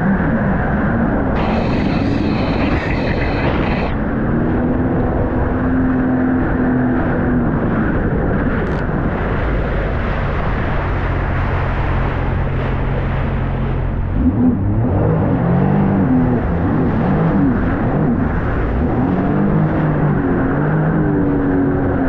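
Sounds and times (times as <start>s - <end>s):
jet ski engine running: 0.1s - 22.0s
high whine: 1.2s - 6.2s
loud rush of noise: 1.2s - 6.3s.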